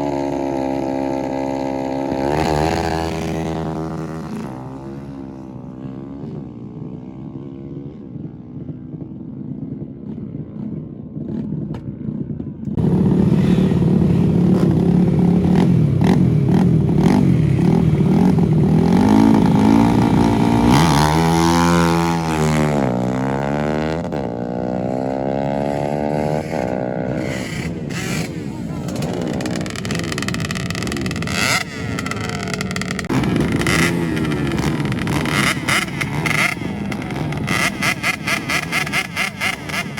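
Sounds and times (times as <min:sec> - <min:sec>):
loud motorcycle engine revving: 0:00.0 - 0:07.9, 0:12.8 - 0:39.9
motorcycle engine running quietly: 0:26.6 - 0:39.9.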